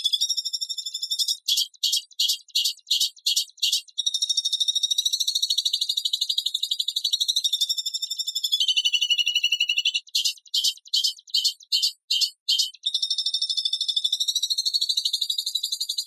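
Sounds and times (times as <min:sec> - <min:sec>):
songbird fast high trill: 0:08.5 - 0:12.7.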